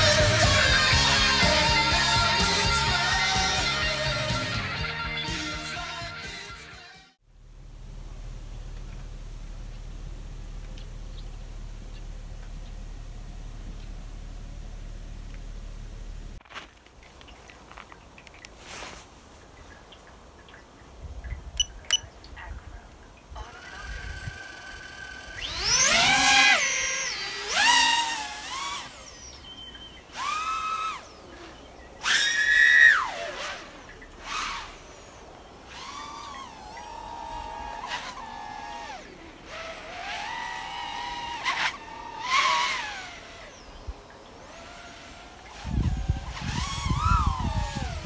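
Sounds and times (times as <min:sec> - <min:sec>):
quadcopter motors whining: 0:23.4 - 0:48.0.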